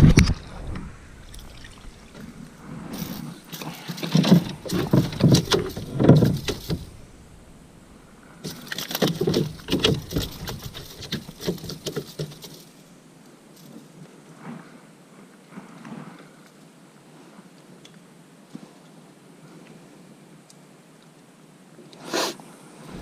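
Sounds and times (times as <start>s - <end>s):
knocks and rattles in a boat: 1.4s - 12.7s.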